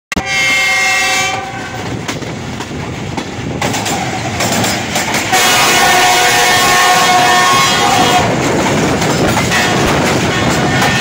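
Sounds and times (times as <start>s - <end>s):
locomotive horn chord: 0.1s - 1.9s, 5.3s - 8.3s, 9.5s - 11.0s
train running noise: 0.1s - 11.0s.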